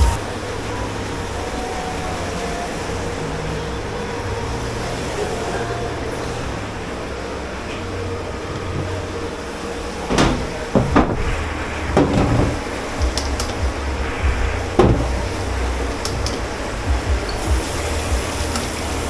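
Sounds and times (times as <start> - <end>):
dishes and pots clattering: 10.1 - 13.7.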